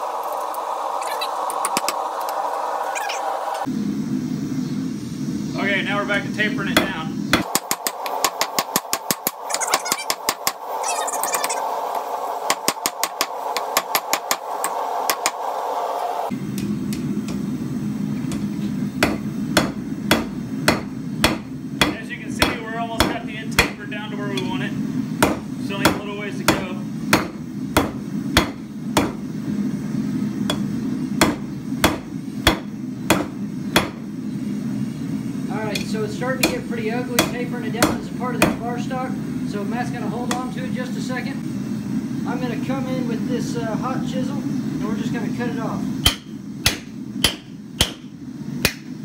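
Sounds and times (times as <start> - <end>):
steady hum: 0.0 - 49.0
hammer striking hot steel on anvil: 6.8 - 9.4, 12.4 - 15.4, 18.3 - 24.6, 25.2 - 29.2, 30.4 - 34.0, 35.7 - 38.7, 40.3 - 40.5, 46.0 - 48.9.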